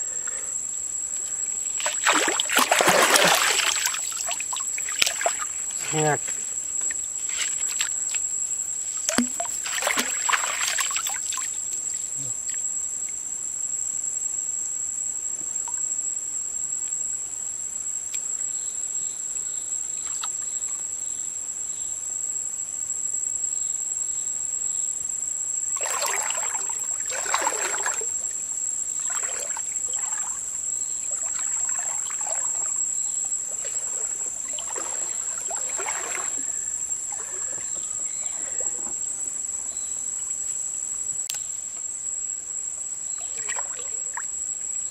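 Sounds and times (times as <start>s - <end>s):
insect drone: 0.0s - 44.9s
water splashing and sloshing: 1.2s - 12.1s, 25.7s - 39.5s, 43.2s - 44.3s.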